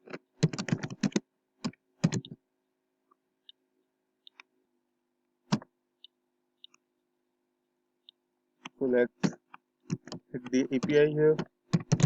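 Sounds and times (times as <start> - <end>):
computer keyboard typing: 0.4 - 2.4, 9.2 - 12.0.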